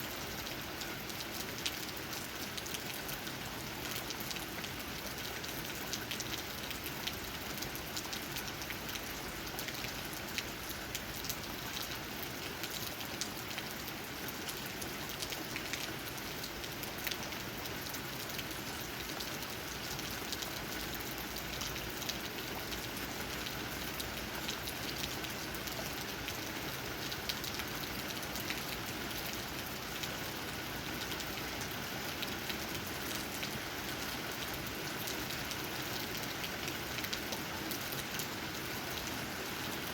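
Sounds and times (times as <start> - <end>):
hiss of downpour: 0.0 - 39.9.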